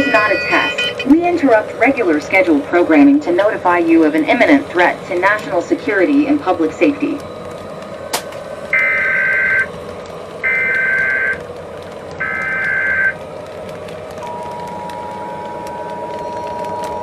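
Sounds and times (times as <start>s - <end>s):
steady hum: 0.0s - 17.0s
screeching digital data bursts: 8.8s - 9.7s.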